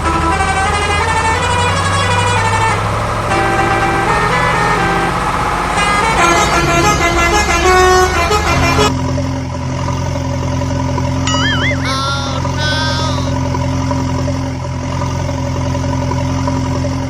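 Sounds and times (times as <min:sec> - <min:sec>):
warbling whistle: 0:11.3 - 0:11.8.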